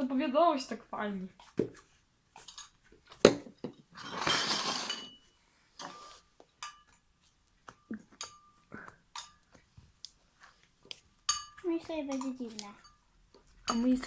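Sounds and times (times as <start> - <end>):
containers and utensils clinking: 2.4 - 7.3.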